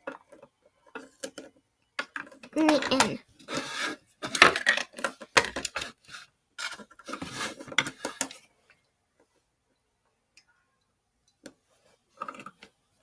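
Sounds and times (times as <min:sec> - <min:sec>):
plastic toys clattering: 0:00.0 - 0:08.4.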